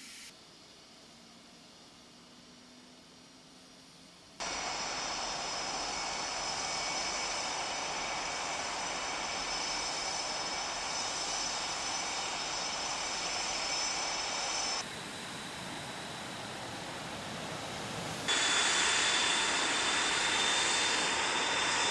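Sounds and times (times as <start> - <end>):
jet engine running: 4.4 - 21.9.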